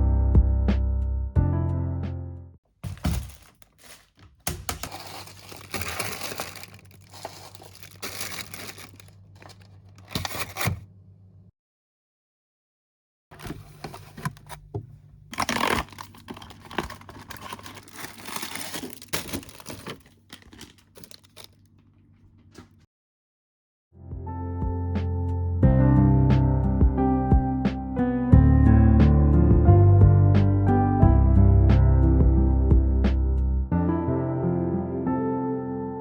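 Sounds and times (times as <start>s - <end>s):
packaging crinkling and tearing: 2.8s - 10.8s, 13.4s - 21.7s.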